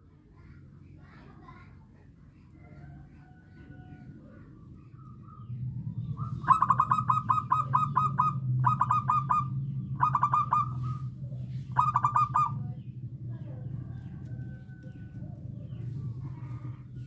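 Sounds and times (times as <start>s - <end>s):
dove cooing: 2.6s - 12.9s.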